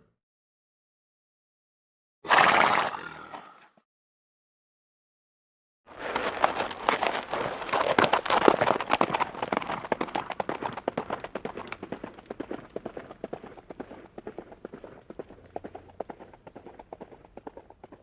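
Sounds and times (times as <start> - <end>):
horses' hooves running: 5.9 - 18.0.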